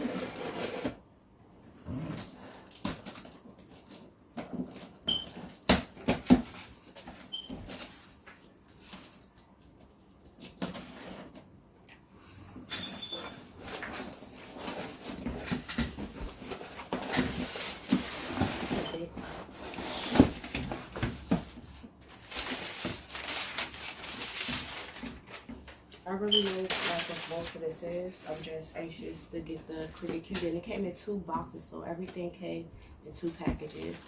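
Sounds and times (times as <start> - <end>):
packaging rustling and crinkling: 2.1 - 11.4, 13.3 - 27.7.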